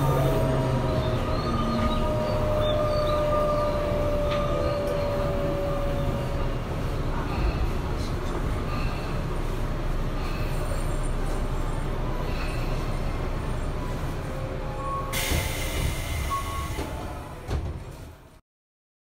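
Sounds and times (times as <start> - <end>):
electric train rumbling: 0.0 - 18.4.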